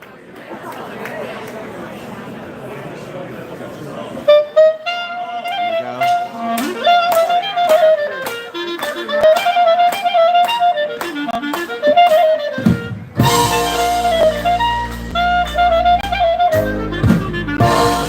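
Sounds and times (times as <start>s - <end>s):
solo clarinet: 4.3s - 18.0s.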